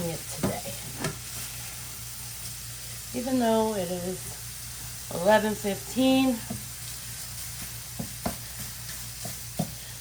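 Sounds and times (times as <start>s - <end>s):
sausage sizzling in a frying pan: 0.0s - 10.0s
utensil tapping on pan: 6.4s - 6.7s, 7.5s - 9.9s.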